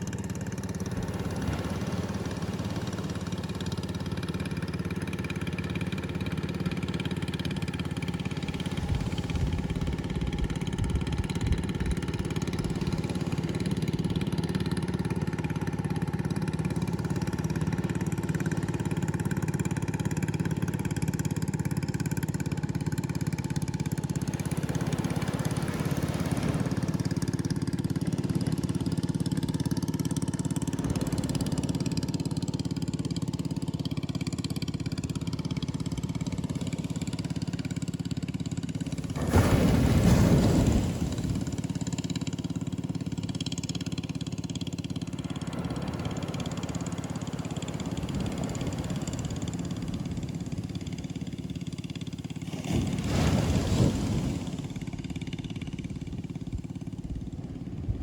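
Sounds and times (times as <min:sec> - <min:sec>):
waves crashing: 0:00.0 - 0:04.4, 0:24.2 - 0:27.6, 0:38.7 - 0:43.2, 0:44.8 - 0:56.0
surf roar: 0:00.0 - 0:58.0.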